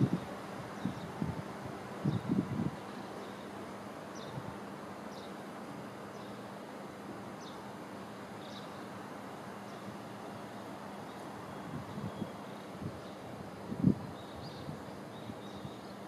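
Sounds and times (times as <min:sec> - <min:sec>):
wind thumps on microphone: 0:00.8 - 0:02.8.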